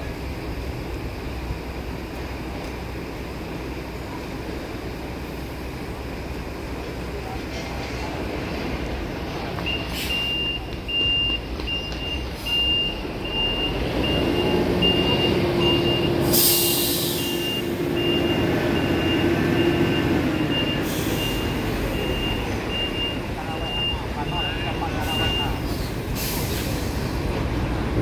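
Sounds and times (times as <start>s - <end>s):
heavy vehicle engine running: 0.0s - 28.0s
reversing alarm beeps: 9.6s - 25.7s
air hiss: 16.2s - 17.6s.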